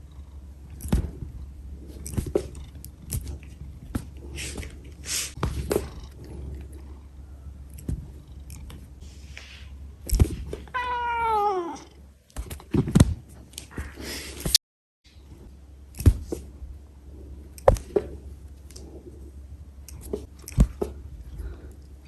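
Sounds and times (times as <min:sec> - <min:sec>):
low hum: 0:00.0 - 0:10.8
scratchy rustles: 0:01.8 - 0:06.9.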